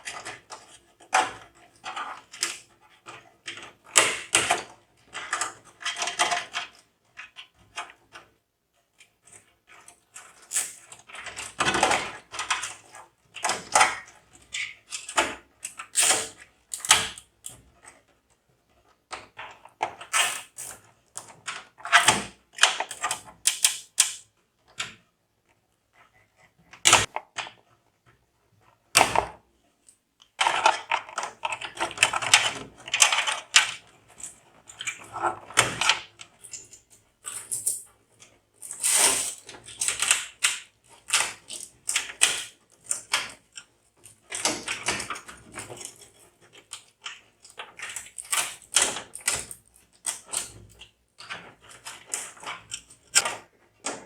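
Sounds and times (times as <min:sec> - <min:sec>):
computer hardware clicking and rattling: 0:30.4 - 0:33.9.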